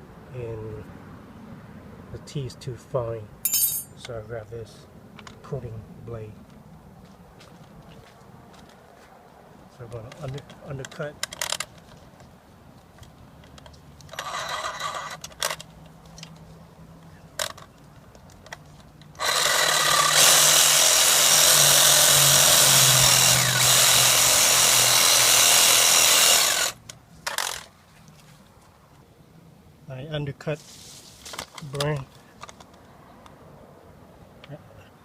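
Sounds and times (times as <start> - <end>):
reciprocating saw cutting branch: 19.2 - 27.7.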